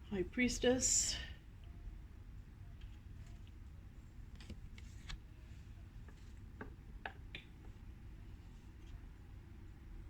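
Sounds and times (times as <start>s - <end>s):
low room hum: 0.0s - 10.0s
cards being handled: 4.3s - 5.4s.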